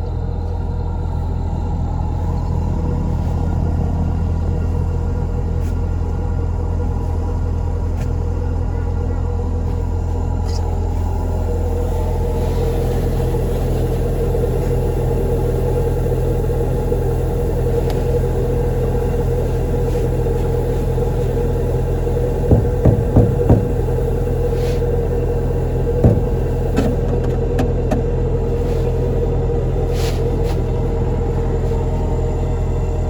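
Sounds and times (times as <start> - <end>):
diesel engine droning: 0.0 - 33.0
knocks: 22.5 - 24.0, 26.0 - 28.0.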